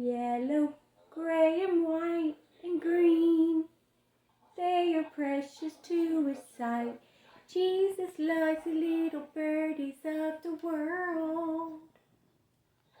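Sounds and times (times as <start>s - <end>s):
woman singing slow tune: 0.0s - 3.8s, 4.6s - 11.9s.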